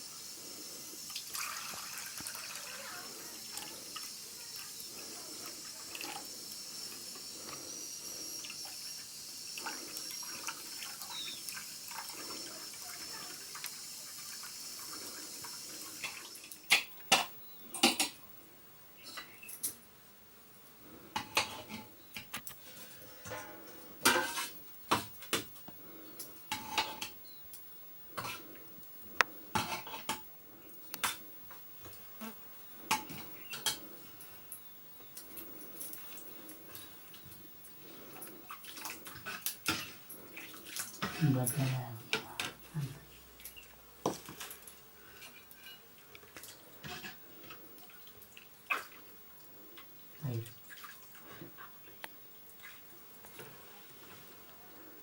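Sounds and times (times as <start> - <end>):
kitchen utensils and pots clinking: 16.0 - 18.2, 23.2 - 25.1, 26.5 - 27.2, 44.1 - 45.9
metal pots clinking: 23.2 - 24.6, 26.5 - 27.2.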